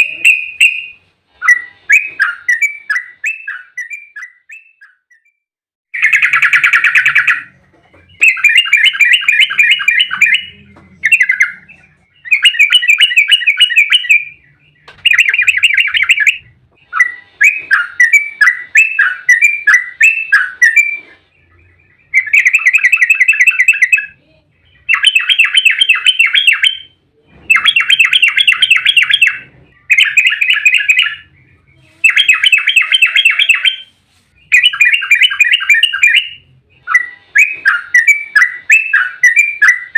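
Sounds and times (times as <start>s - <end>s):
bulbul singing bubbling song: 8.1s - 39.9s.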